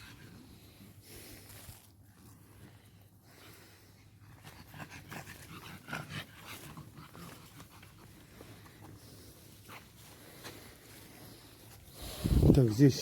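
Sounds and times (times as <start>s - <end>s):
dog panting: 3.5s - 10.5s.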